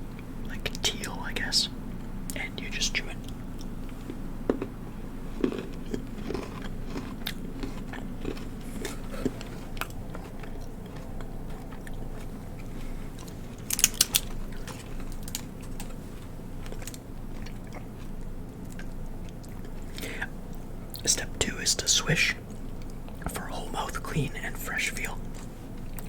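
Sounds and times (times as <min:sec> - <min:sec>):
person crunching tablet: 0:03.2 - 0:16.0.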